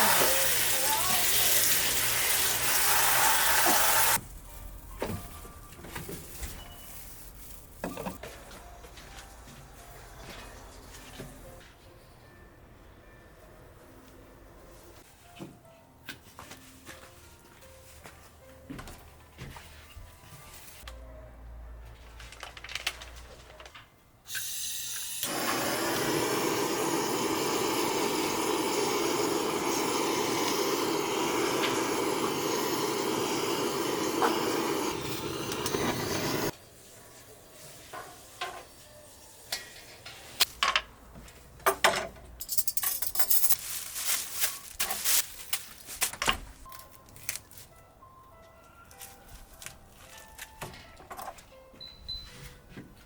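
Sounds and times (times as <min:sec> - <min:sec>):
water running from a tap: 0:00.0 - 0:04.2, 0:24.3 - 0:36.5.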